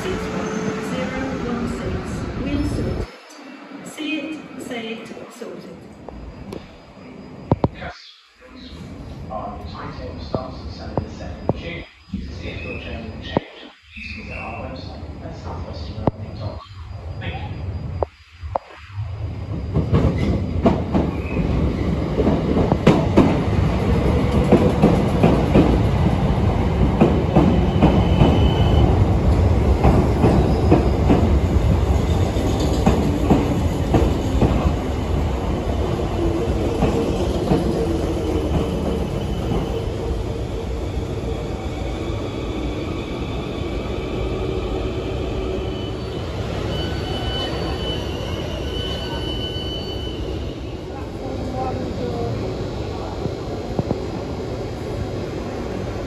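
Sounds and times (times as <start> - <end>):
train wheels clattering: 24.1 - 25.9, 26.8 - 34.8
high wheel squeal: 45.0 - 50.8.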